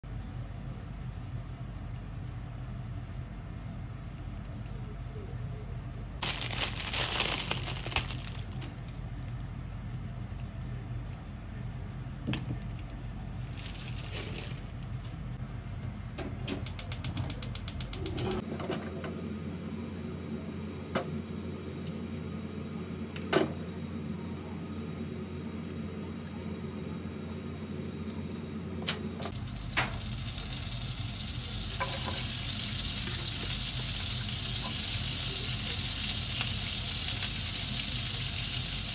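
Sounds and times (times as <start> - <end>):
vegetables sizzling in a pan: 6.2 - 8.6, 29.3 - 38.9
plastic packaging crinkling: 6.2 - 9.6, 13.4 - 14.9.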